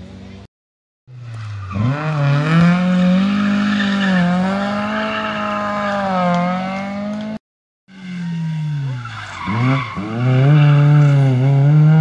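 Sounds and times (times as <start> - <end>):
rally car engine at full throttle: 1.1 - 12.0.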